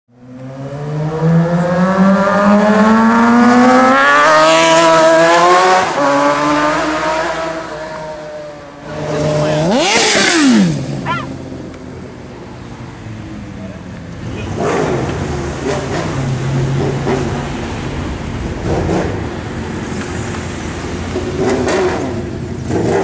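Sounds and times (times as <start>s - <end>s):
motorcycle engine rev: 0.4s - 11.6s, 14.3s - 17.3s, 21.2s - 23.0s
motorcycle engine accelerating: 0.4s - 11.7s.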